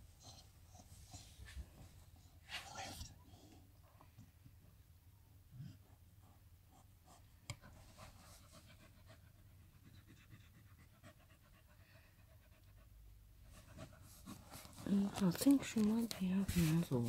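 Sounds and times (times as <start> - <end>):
dog panting: 7.6 - 16.8.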